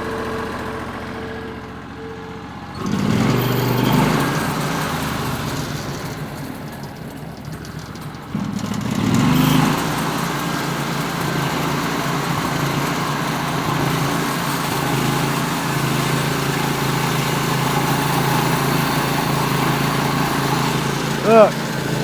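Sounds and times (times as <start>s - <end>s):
sawmill engine throttling up: 0.0s - 22.0s.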